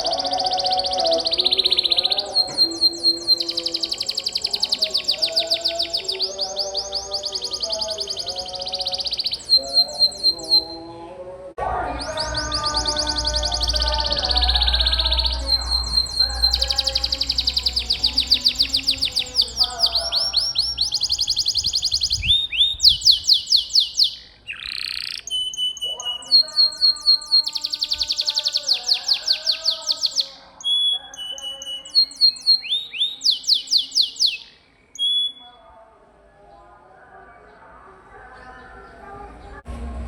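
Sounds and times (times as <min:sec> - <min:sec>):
canary singing trills: 0:00.0 - 0:35.9.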